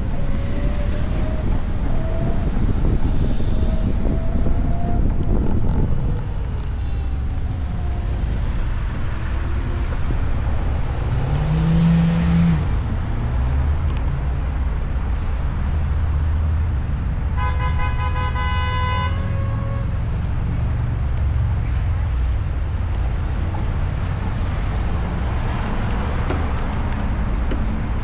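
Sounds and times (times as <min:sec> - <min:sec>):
city traffic rumble: 0:00.0 - 0:28.0
wind: 0:00.0 - 0:28.0
car horn: 0:17.4 - 0:19.9.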